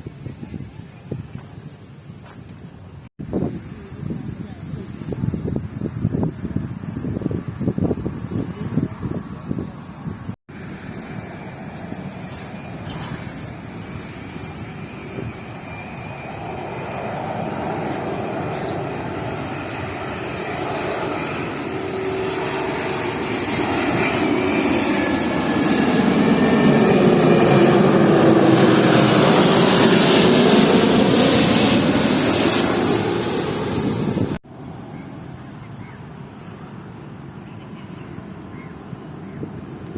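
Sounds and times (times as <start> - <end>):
airliner jet roar overhead: 3.2 - 39.9.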